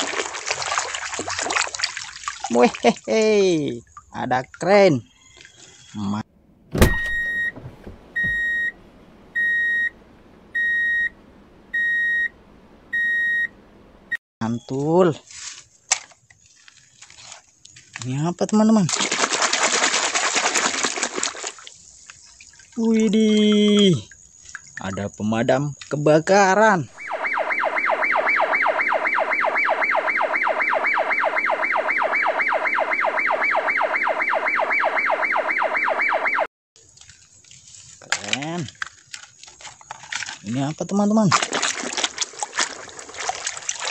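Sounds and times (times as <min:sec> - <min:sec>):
reversing alarm beeps: 0:06.9 - 0:07.6, 0:08.2 - 0:08.8, 0:09.4 - 0:09.9, 0:10.6 - 0:11.2, 0:11.8 - 0:12.3, 0:13.0 - 0:13.5, 0:27.0 - 0:36.5
fire engine siren yelping: 0:27.0 - 0:36.5.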